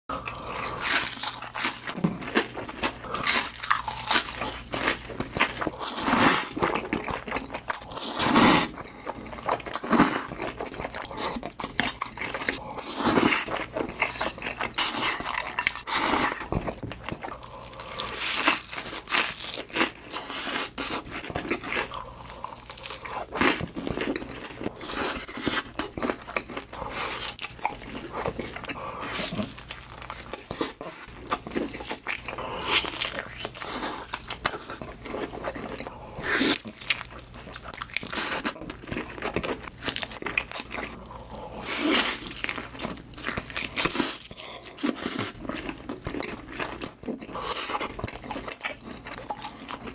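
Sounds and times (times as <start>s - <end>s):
crisp food being chewed: 0.1s - 49.9s.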